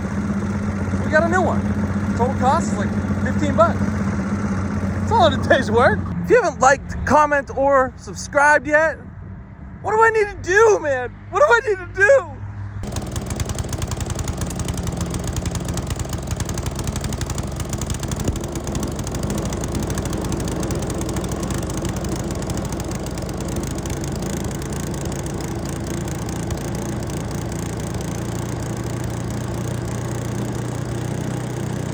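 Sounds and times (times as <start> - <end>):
wood chipper engine running: 0.0 - 6.2, 12.8 - 31.9.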